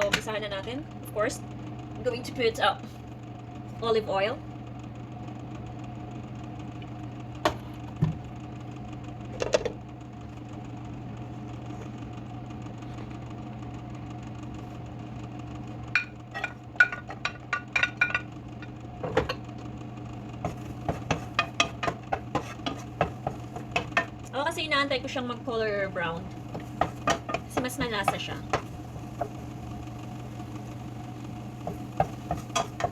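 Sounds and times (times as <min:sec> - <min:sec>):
kitchen appliance humming: 0:00.0 - 0:32.9
clicks and clinks in a pan: 0:16.0 - 0:18.3.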